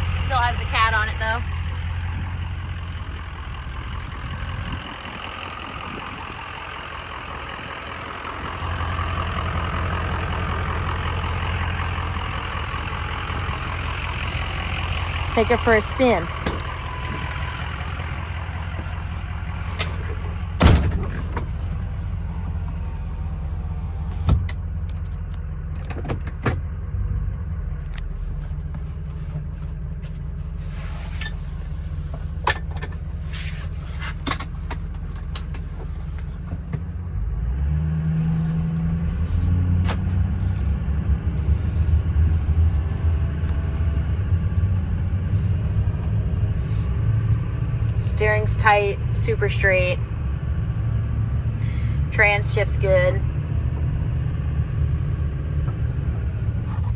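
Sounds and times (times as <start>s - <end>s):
diesel truck engine rumbling: 0.0s - 56.9s
sharp engine knocks: 19.7s - 21.9s.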